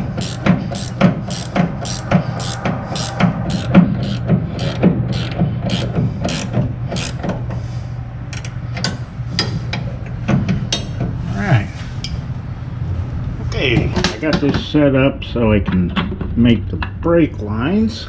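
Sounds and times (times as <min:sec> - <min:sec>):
ratchet wrench clicking: 0:00.0 - 0:07.3, 0:08.3 - 0:08.6
tool handling: 0:00.0 - 0:07.3, 0:08.3 - 0:09.0.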